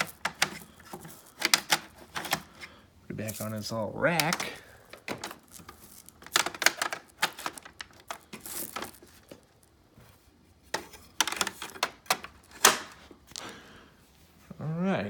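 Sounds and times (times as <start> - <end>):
plastic clicks and knocks: 10.7 - 12.9.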